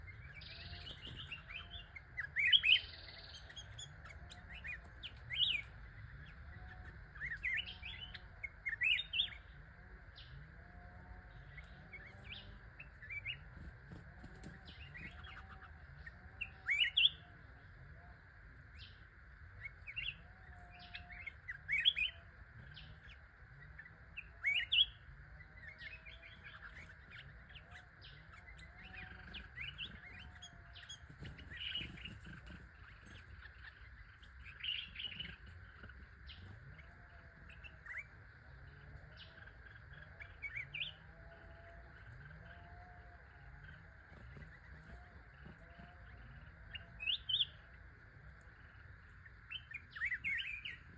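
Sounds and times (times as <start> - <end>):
fainter lower bird calls: 0.0 - 50.9.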